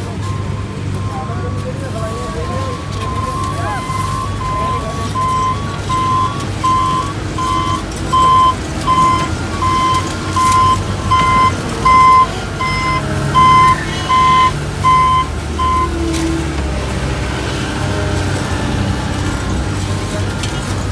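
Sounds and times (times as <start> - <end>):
reversing alarm beeping: 0.0 - 16.6
diesel engine running: 0.0 - 20.9.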